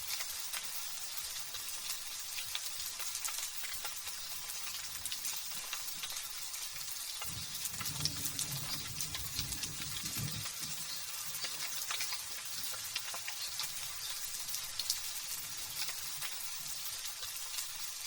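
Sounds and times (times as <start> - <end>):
light drizzle pattering: 1.3 - 18.0
distant thunder rumble: 7.2 - 11.2.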